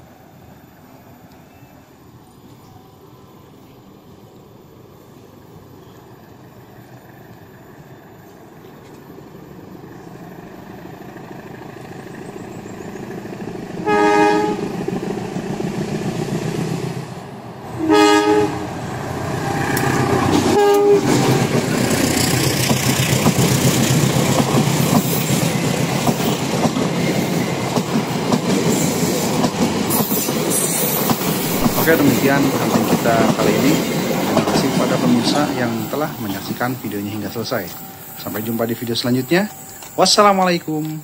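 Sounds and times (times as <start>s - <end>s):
locomotive engine and wheels rumbling: 0.0s - 41.0s
two-note train horn: 13.8s - 14.7s, 17.8s - 18.7s, 20.5s - 21.2s.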